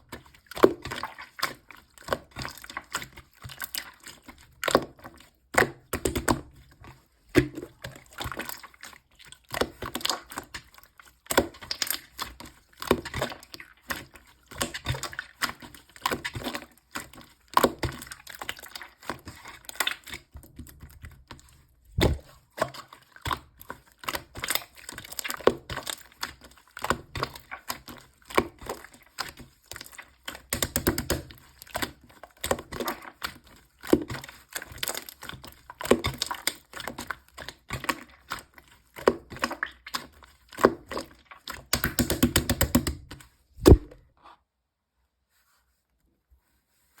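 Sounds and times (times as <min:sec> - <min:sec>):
loud thump: 0:22.0 - 0:22.2, 0:43.6 - 0:44.0
slime clicking and popping: 0:43.6 - 0:44.0.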